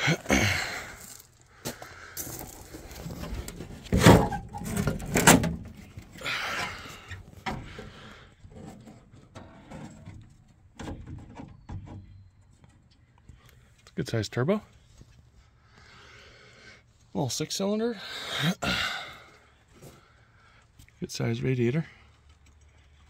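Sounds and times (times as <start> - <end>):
hood hinge scraping creak: 3.0 - 12.3.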